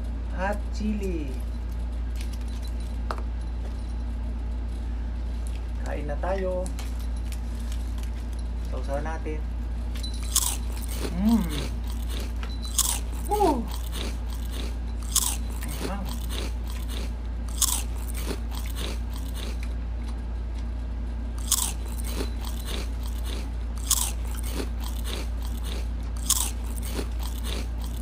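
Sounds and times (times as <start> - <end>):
soft chewing sounds: 4.8 - 6.0, 6.6 - 8.8, 9.8 - 28.0
crisp leaf crunches: 10.3 - 19.6.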